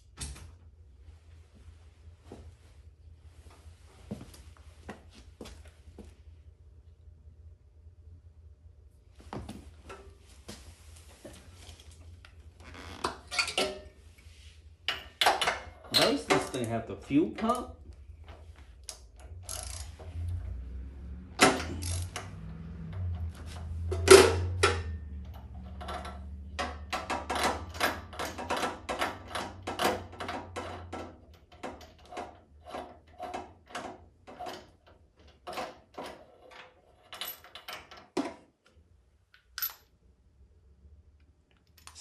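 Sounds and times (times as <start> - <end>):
low steady hum: 0.0 - 42.0
ratchet wrench clicking: 19.4 - 20.0, 21.6 - 22.4.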